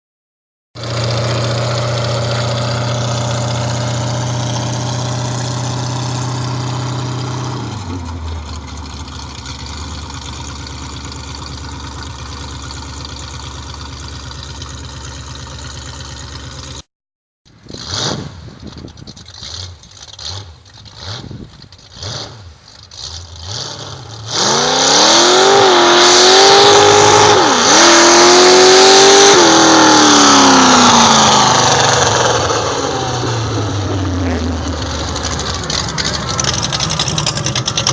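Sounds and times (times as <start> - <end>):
truck engine revving: 0.8 - 8.6, 17.6 - 37.9
truck engine idling: 8.0 - 16.8, 30.9 - 37.9.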